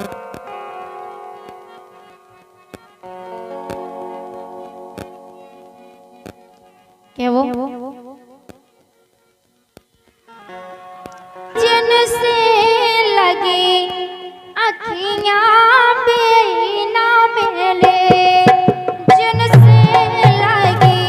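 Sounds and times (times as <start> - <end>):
folk song melody: 0.0 - 21.0
drum beats: 17.8 - 21.0.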